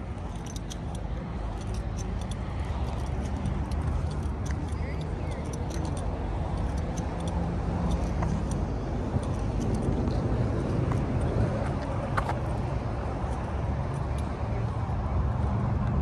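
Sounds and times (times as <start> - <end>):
vehicle engine rumbling: 0.0 - 16.0
light clicks: 0.2 - 10.2.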